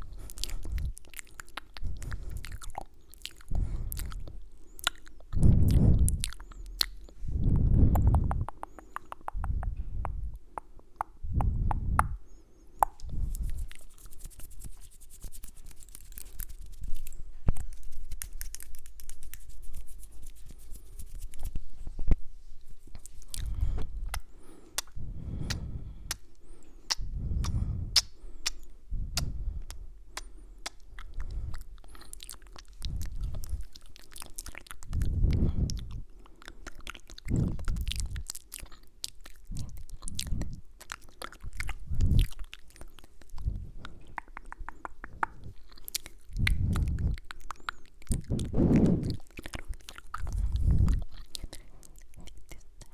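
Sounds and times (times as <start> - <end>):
wet mouth clicks: 0.0 - 21.6, 22.8 - 52.9
kissing sounds: 7.9 - 12.2, 12.8 - 21.5, 26.9 - 30.8, 44.1 - 45.5
soft low puffs: 48.2 - 49.2.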